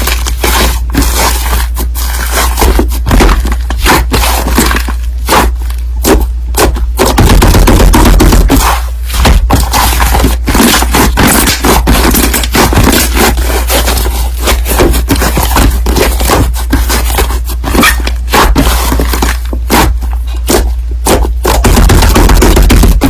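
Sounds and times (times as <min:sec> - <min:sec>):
crunchy slime squished by hand: 0:00.0 - 0:23.0.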